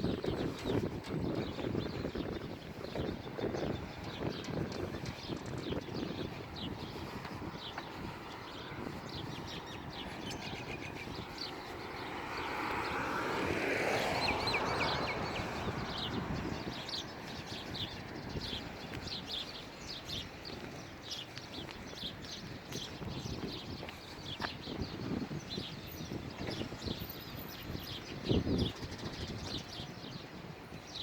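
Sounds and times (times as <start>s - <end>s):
small birds chirping: 0.0s - 13.2s, 13.8s - 31.0s
passing noise falling in pitch: 11.7s - 16.2s.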